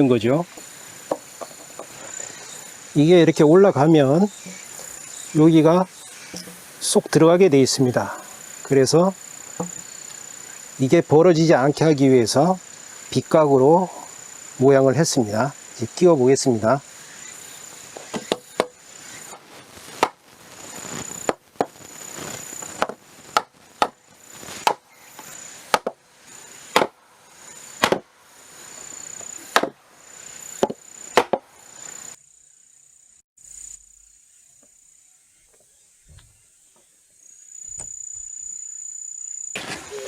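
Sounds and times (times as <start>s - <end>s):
crickets chirping: 0.0s - 40.0s
hammer knocking on wood: 9.6s - 9.8s.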